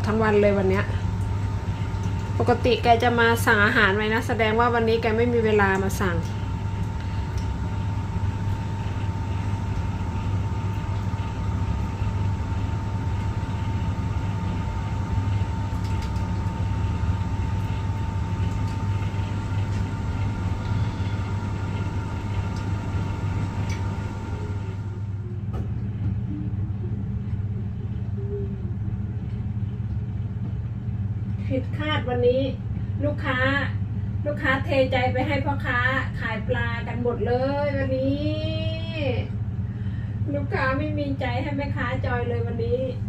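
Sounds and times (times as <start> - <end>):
low machine rumble: 0.0 - 43.0
thin high whine: 5.9 - 25.5.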